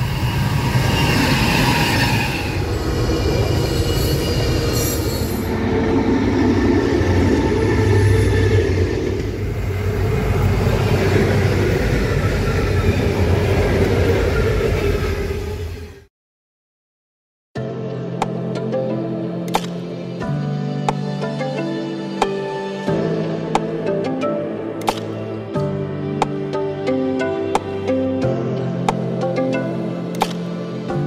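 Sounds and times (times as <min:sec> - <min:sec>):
high tones from train wheels: 0:00.0 - 0:16.0
wagons rumbling along rails: 0:00.0 - 0:16.0.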